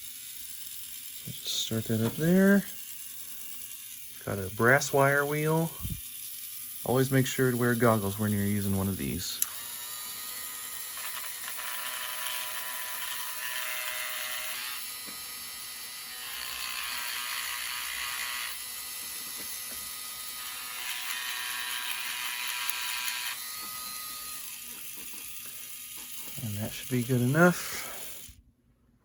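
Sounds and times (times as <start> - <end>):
rotary tool whining: 0.0 - 28.4
wire wheel scrubbing metal: 24.4 - 28.3.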